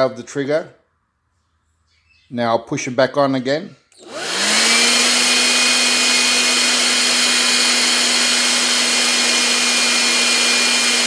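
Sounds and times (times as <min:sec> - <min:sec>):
hair dryer running: 0:04.0 - 0:11.0.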